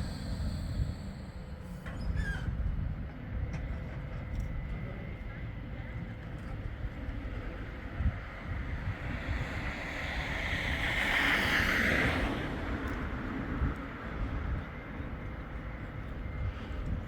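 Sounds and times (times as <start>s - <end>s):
wind buffeting microphone: 0.0s - 4.7s, 6.5s - 17.0s
tram running past: 6.5s - 17.0s.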